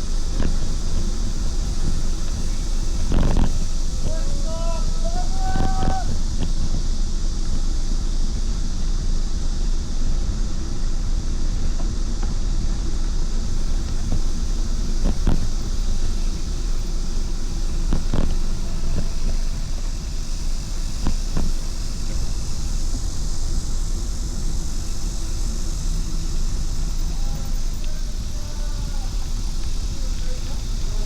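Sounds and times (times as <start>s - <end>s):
wind rush on microphone: 0.0s - 31.0s.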